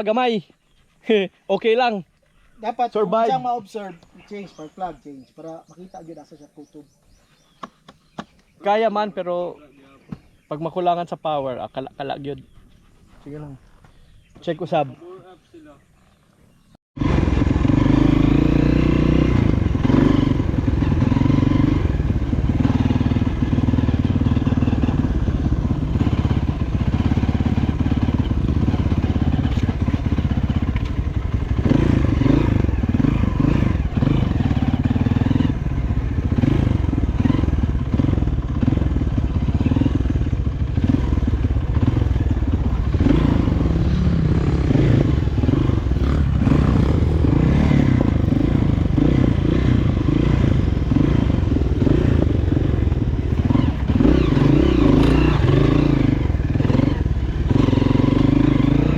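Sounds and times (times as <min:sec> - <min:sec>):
dirt bike engine revving: 0:17.0 - 0:58.9.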